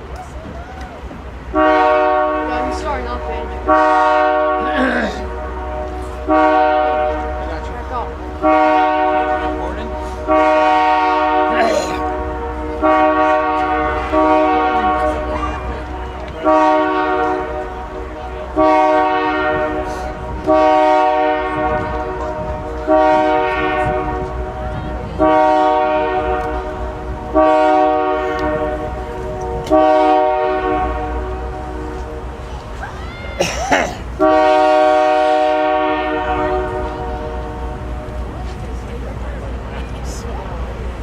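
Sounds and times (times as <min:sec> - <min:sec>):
diesel locomotive idling: 0:00.0 - 0:41.0
locomotive bell ringing: 0:01.6 - 0:20.8.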